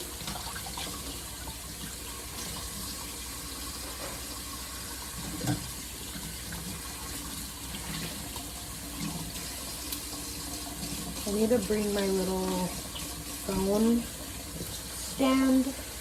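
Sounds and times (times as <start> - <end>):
tap running into sink: 3.7 - 11.3.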